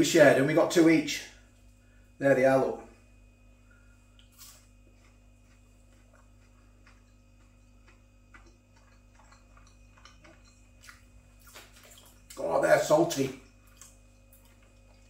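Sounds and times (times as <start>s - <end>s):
low steady hum: 0.0s - 15.0s
soft chewing crunches: 3.5s - 12.6s, 13.2s - 15.0s.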